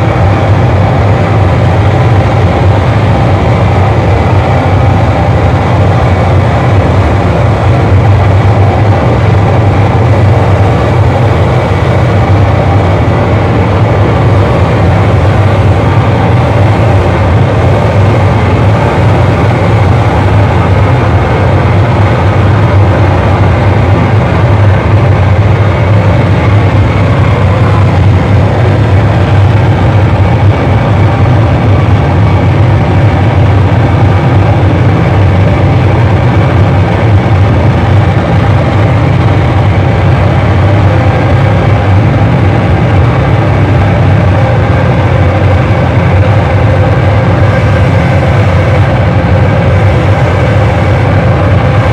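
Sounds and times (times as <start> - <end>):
distorted noise music: 0.0 - 51.9.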